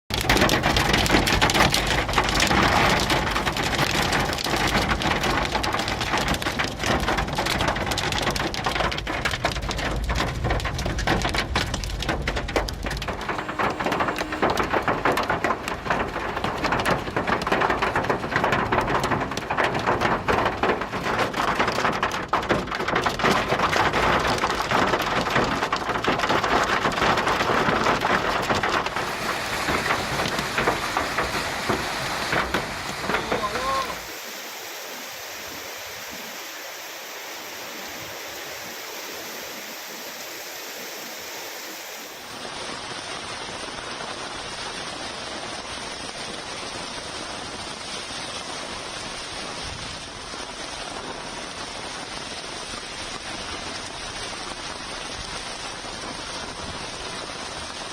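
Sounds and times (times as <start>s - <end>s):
heavy rain pouring: 0.1s - 57.9s
deep rumble: 8.9s - 19.6s.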